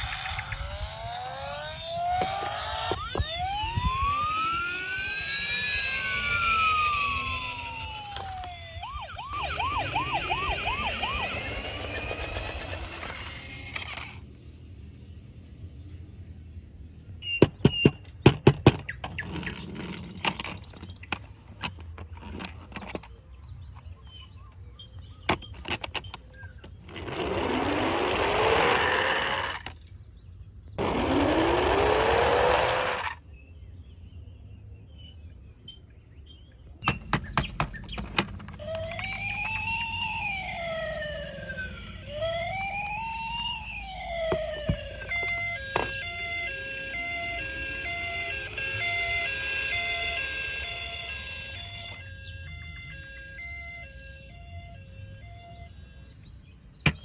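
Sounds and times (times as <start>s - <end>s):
toy siren wailing: 0.0s - 14.2s, 26.6s - 29.7s, 30.8s - 33.2s, 37.9s - 57.0s
rushing bursts with rising tone: 0.0s - 15.6s.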